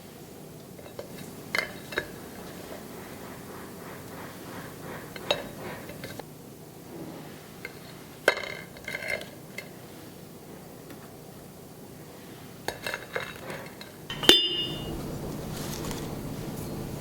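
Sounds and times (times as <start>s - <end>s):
kitchenware clinking and knocking: 0.8s - 6.2s, 12.7s - 15.1s.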